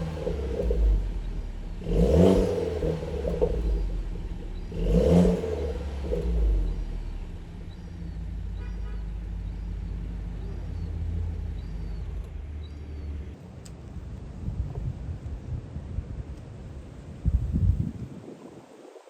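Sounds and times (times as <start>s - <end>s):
car engine revving and idling: 0.0s - 13.4s.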